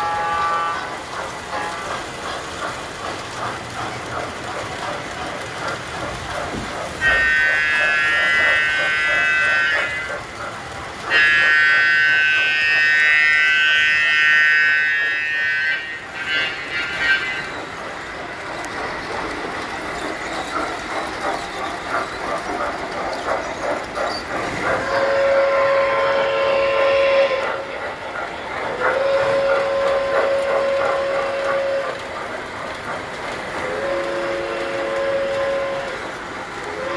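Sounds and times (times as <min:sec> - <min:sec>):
lower toy train whistle: 0:00.0 - 0:00.9, 0:07.0 - 0:10.2, 0:11.0 - 0:17.6, 0:24.7 - 0:27.7, 0:28.8 - 0:32.1, 0:33.6 - 0:36.9
toy train whistle blasts: 0:00.0 - 0:00.9, 0:01.5 - 0:01.8, 0:07.0 - 0:10.2, 0:11.1 - 0:17.7, 0:24.8 - 0:27.6, 0:28.8 - 0:32.0, 0:33.6 - 0:36.0
toy trains rumbling on track: 0:00.0 - 0:36.9.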